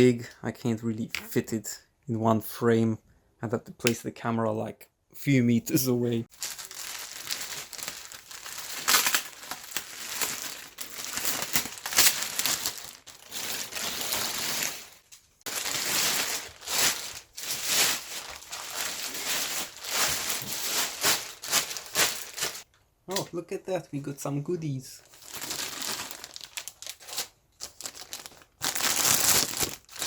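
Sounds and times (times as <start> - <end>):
packing material rustling and crinkling: 6.3 - 22.7, 25.0 - 30.0.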